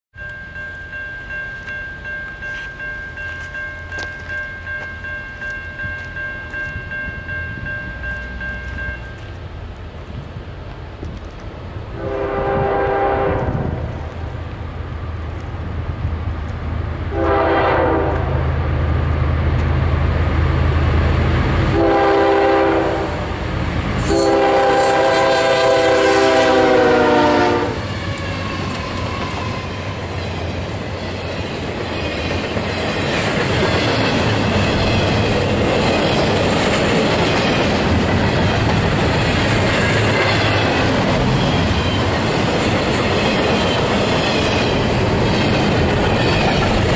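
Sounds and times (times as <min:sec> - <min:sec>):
clickety-clack of wheels on rails: 0:00.2 - 0:12.6, 0:19.1 - 0:22.8, 0:23.4 - 0:46.9
diesel locomotive rumble: 0:05.4 - 0:46.9
train air horn blasts: 0:12.0 - 0:14.2, 0:17.1 - 0:18.5, 0:21.7 - 0:23.4, 0:24.0 - 0:28.8.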